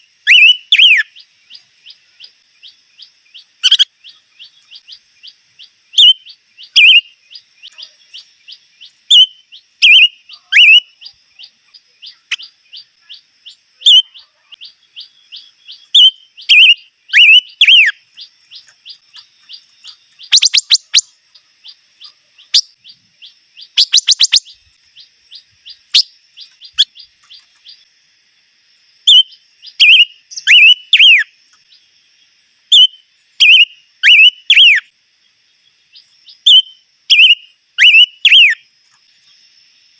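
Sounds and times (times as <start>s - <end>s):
rapid bird trills: 0.0s - 27.9s, 29.1s - 31.8s, 32.7s - 34.9s, 35.9s - 38.6s
downslurred bird whistles: 0.2s - 1.1s, 9.1s - 11.0s, 15.8s - 18.0s, 20.3s - 21.1s, 23.6s - 24.6s, 29.1s - 31.3s, 32.7s - 34.9s, 36.5s - 38.6s.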